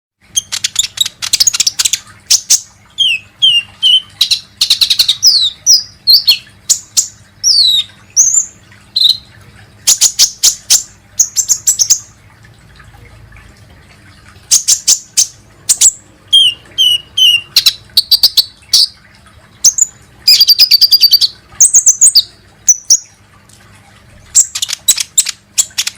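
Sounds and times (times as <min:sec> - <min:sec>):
sunbird singing buzzy trills: 0:00.3 - 0:12.2, 0:14.5 - 0:19.0, 0:19.6 - 0:23.2.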